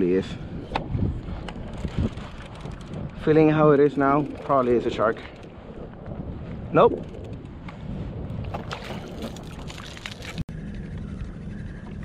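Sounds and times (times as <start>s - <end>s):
wind noise on microphone: 0.0s - 12.0s
low hum: 0.4s - 12.0s
water sloshing: 8.4s - 10.4s
water splashes: 8.5s - 10.5s.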